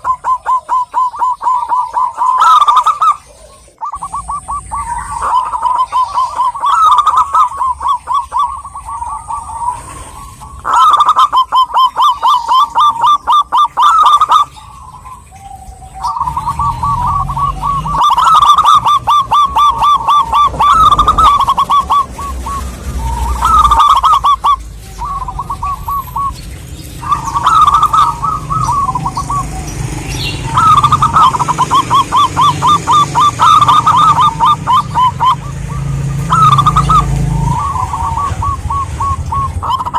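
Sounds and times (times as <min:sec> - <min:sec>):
dove staccato cooing: 0:00.0 - 0:39.9.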